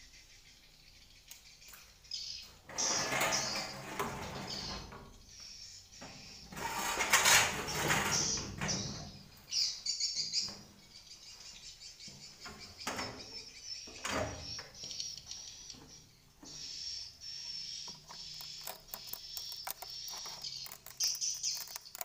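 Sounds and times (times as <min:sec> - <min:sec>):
rustling scraping burst: 0:02.7 - 0:04.7
swiftlets chirping: 0:17.3 - 0:22.0.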